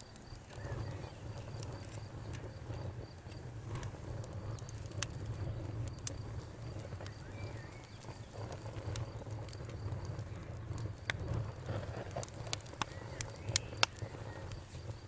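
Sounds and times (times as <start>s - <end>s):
campfire crackling: 0.0s - 15.0s
bird chirp: 0.5s - 1.5s, 6.4s - 8.5s, 12.8s - 14.6s.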